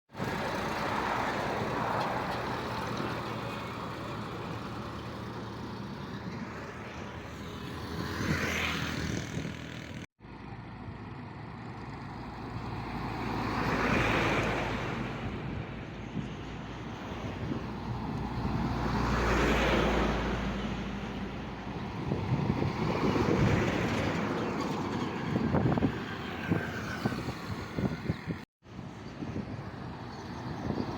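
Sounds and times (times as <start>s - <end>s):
passing vehicles: 0.1s - 30.9s.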